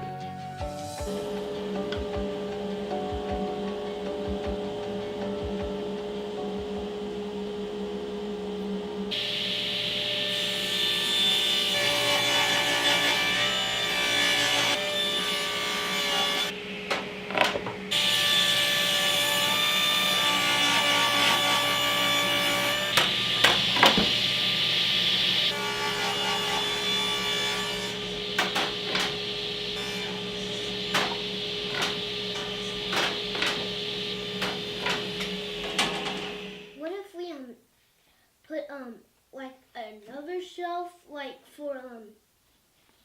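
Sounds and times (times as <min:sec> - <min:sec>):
table saw cutting wood: 0:08.0 - 0:36.8.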